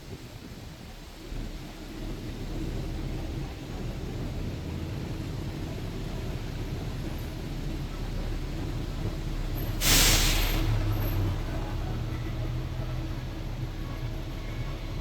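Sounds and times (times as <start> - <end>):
bus low rumble: 0.0 - 15.0
traffic on wet streets: 0.0 - 15.0
loud hiss: 9.7 - 10.9.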